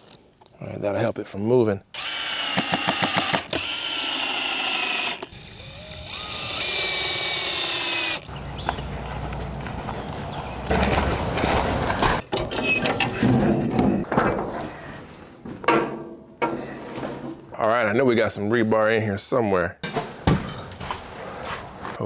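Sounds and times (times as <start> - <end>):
power drill driving screws: 2.0 - 12.2, 21.6 - 22.0.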